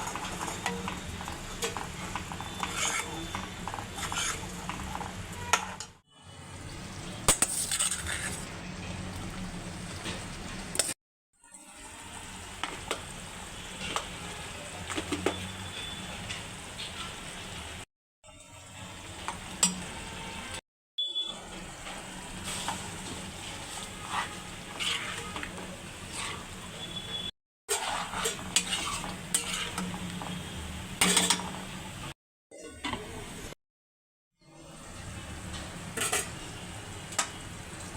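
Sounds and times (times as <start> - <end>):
spatula scraping a pan: 0.0 - 6.0, 7.4 - 8.5, 21.8 - 31.5.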